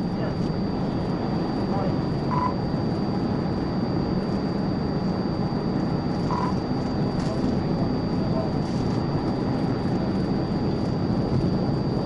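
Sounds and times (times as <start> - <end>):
faint high whine: 0.0 - 12.0
short beep: 2.3 - 2.6, 6.3 - 6.6.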